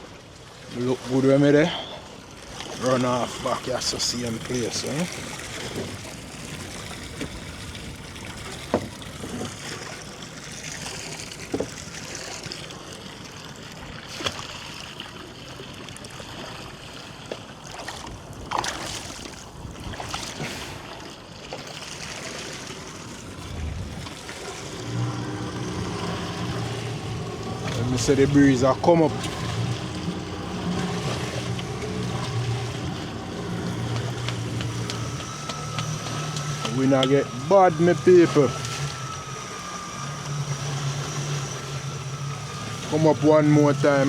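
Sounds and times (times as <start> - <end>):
low motor hum: 0.0 - 44.0
water wash: 0.0 - 44.0
wind noise: 23.4 - 24.3.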